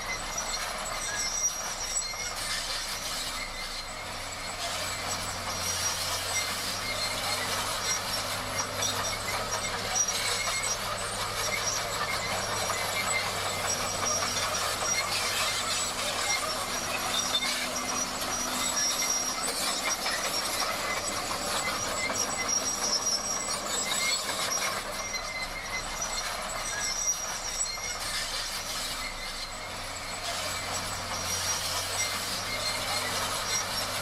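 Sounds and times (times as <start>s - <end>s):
bulldozer engine humming: 0.0s - 34.0s
high metallic squeals: 0.0s - 34.0s
steel tracks clattering: 0.0s - 34.0s.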